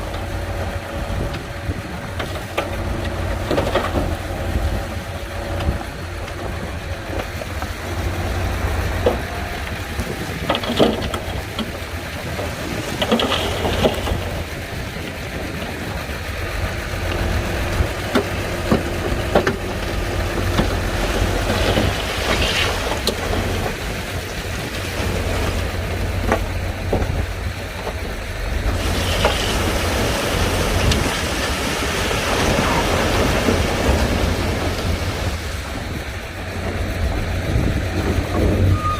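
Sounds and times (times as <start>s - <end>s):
bulldozer diesel engine rumbling: 0.0s - 38.9s
clanks and knocks: 10.4s - 11.7s.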